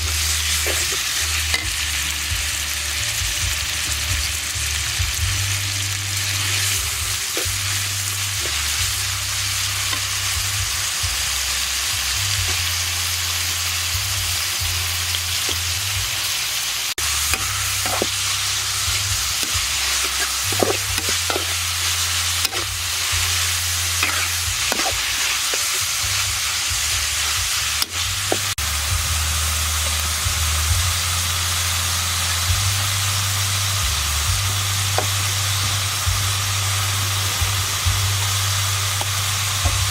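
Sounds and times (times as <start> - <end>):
spatula scraping a pan: 0.0 - 1.8, 17.0 - 28.6
food sizzling in a pan: 0.0 - 39.9.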